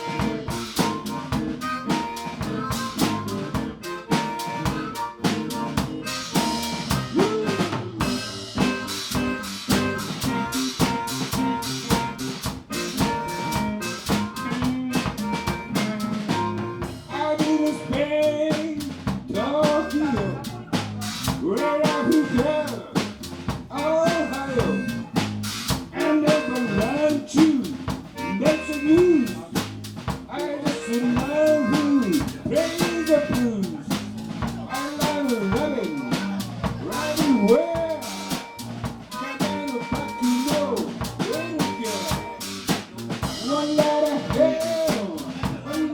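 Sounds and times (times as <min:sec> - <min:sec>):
bending melodic lead line: 0:00.0 - 0:18.5, 0:34.5 - 0:42.7
drum kit with rimshots: 0:00.0 - 0:45.9
live band playing jazz blues: 0:00.0 - 0:45.9.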